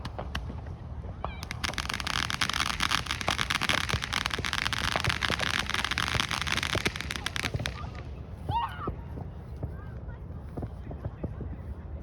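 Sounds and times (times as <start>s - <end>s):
fireworks crackling: 0.0s - 0.6s, 1.4s - 8.5s.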